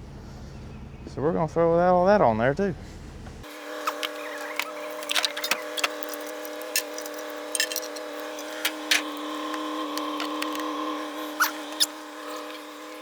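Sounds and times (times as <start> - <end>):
jumper cable clamps clinking: 3.8 - 12.8.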